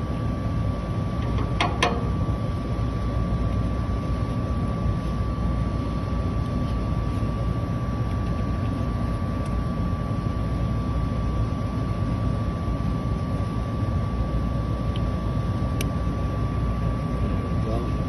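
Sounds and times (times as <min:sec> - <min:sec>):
high whine: 0:00.0 - 0:18.0.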